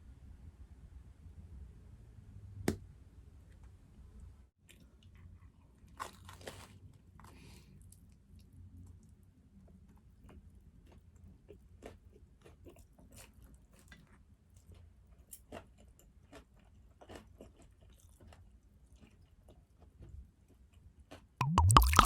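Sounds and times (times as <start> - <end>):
chewing food: 9.8 - 22.0.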